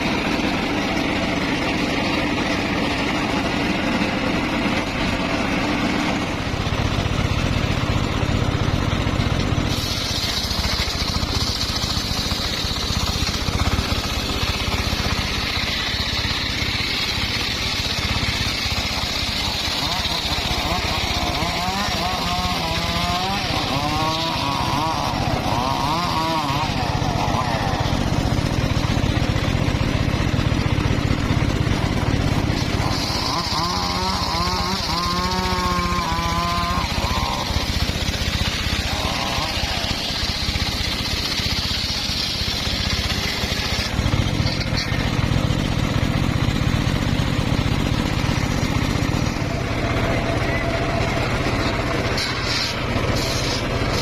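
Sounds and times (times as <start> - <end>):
saw whine: 0.0 - 54.0
sawmill engine drone: 0.0 - 54.0.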